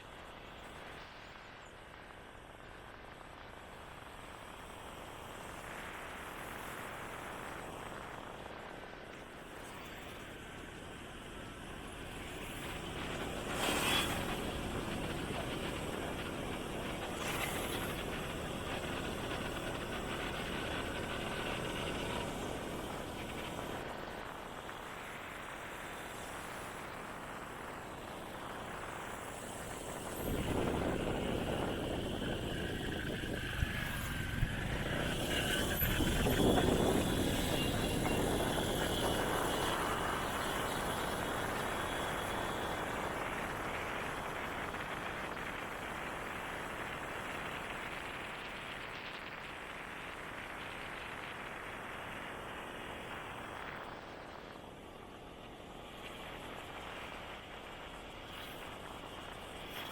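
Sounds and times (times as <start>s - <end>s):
road noise: 25.0s - 44.2s.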